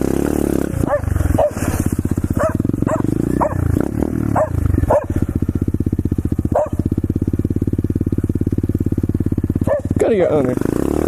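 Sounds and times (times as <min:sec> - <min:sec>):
motorcycle engine running: 0:00.0 - 0:11.0
dog barking: 0:00.8 - 0:01.7, 0:02.3 - 0:05.2, 0:06.5 - 0:07.0, 0:09.6 - 0:10.0.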